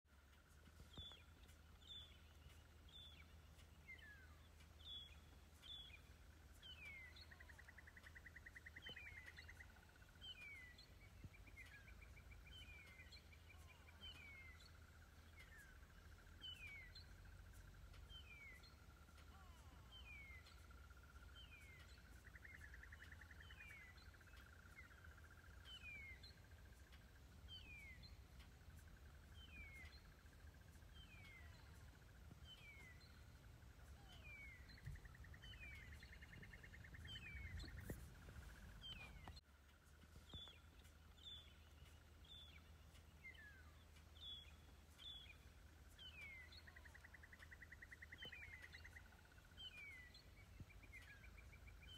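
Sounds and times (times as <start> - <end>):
steady high hum: 0.1 - 51.9
low rumble: 24.0 - 45.9.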